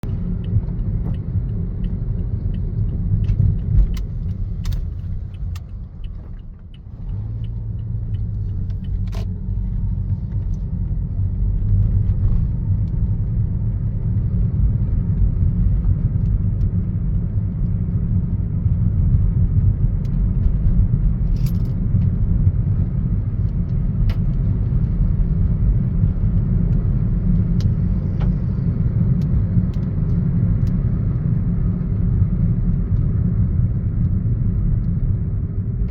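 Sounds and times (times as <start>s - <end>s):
steady low rumble: 0.0s - 35.9s
faint ticks: 0.3s - 9.4s.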